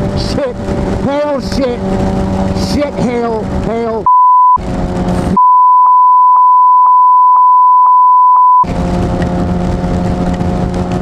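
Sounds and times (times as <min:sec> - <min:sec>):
wind noise: 0:00.0 - 0:05.4, 0:08.6 - 0:11.0
motorcycle engine hum: 0:00.0 - 0:05.5, 0:08.6 - 0:11.0
high-pitched censor bleep: 0:04.1 - 0:04.6, 0:05.4 - 0:08.7.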